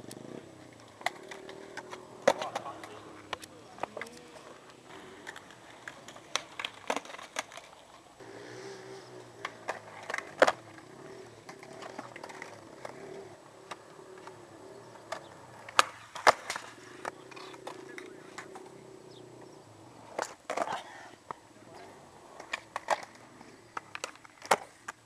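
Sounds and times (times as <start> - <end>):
skateboard pops and knocks: 5.2 - 7.8, 15.0 - 18.7, 22.4 - 25.0.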